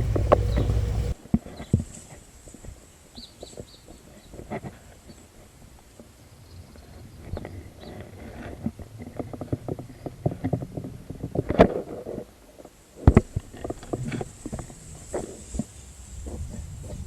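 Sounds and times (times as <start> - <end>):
loud thumps: 0.0 - 1.2
low rumble: 0.0 - 1.2.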